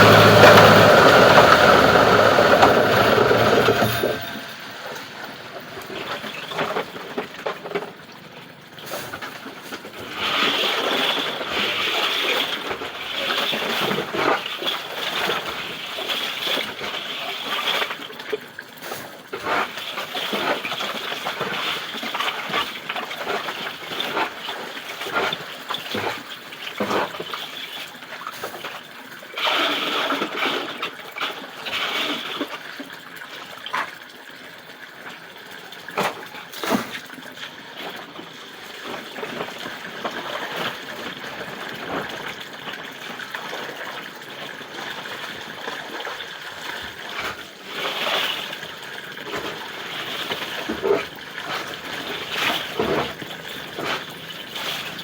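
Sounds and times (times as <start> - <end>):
plastic grinder chopping plastic: 0.0 - 4.7, 49.3 - 55.0.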